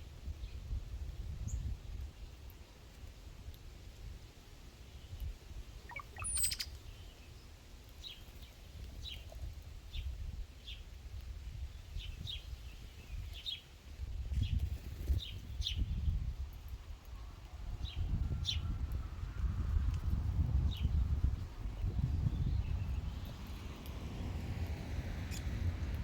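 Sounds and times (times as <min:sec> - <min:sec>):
bird chip calls: 0:05.9 - 0:06.8.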